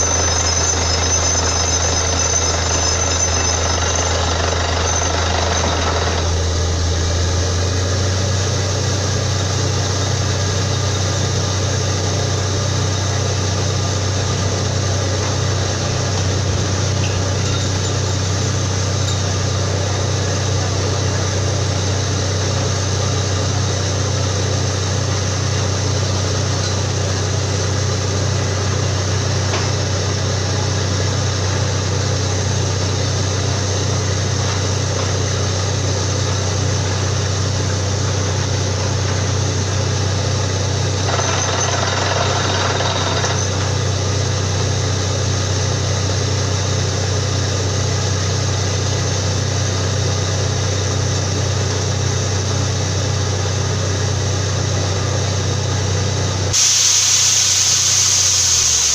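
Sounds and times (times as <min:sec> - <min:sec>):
drilling rig running: 0:00.0 - 0:58.9
burst of hiss: 0:56.6 - 0:58.9.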